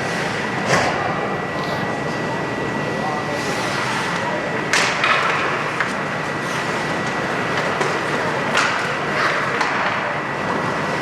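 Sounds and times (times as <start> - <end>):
arena crowd noise: 0.0 - 6.0.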